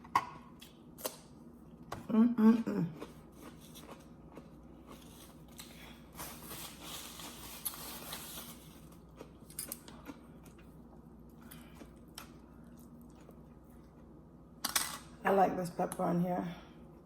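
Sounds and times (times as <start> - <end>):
person chewing food: 2.8 - 14.3.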